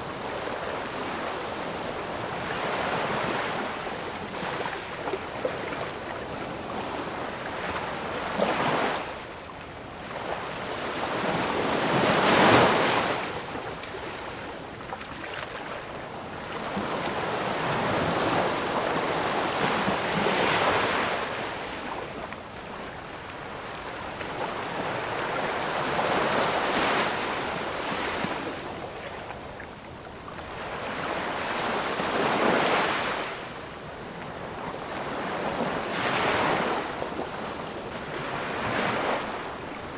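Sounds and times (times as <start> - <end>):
ocean waves breaking on shore: 10.0 - 39.9.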